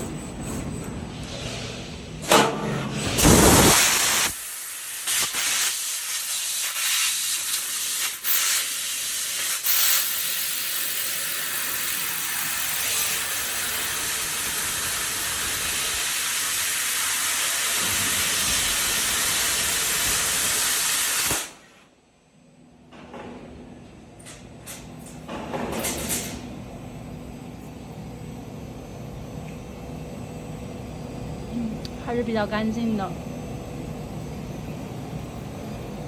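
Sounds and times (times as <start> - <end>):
laser cutter gas jet hissing: 2.9 - 21.6.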